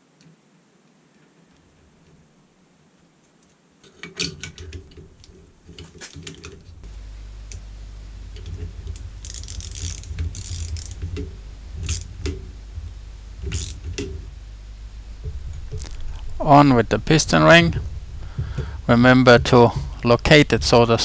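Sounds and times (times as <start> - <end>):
steady low hum: 6.6 - 21.0
metal parts clicking and rattling: 8.4 - 12.4, 13.4 - 14.2.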